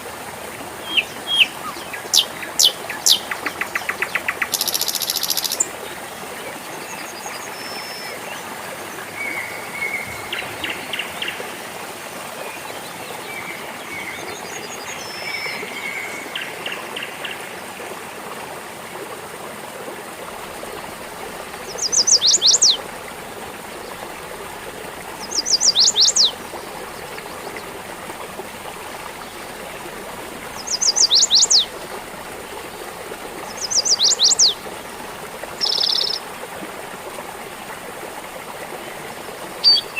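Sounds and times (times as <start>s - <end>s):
stream trickling and gurgling: 0.0s - 39.9s
birds chirping: 0.8s - 5.7s, 21.6s - 22.8s, 25.1s - 27.9s, 30.5s - 31.7s, 33.5s - 34.6s, 35.6s - 36.2s, 39.6s - 39.9s.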